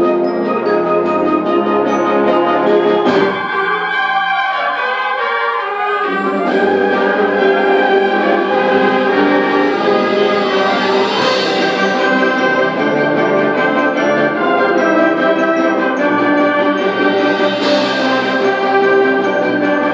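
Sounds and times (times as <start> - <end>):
concert band playing: 0.0 - 19.9.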